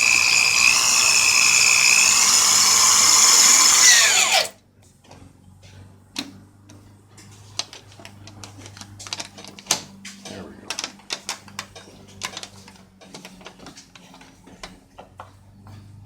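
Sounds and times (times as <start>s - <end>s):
electric drill whining: 0.0s - 4.6s.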